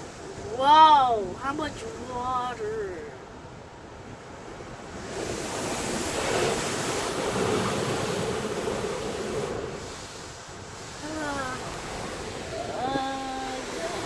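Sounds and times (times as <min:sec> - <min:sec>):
water spray rushing on car: 0:05.0 - 0:14.0.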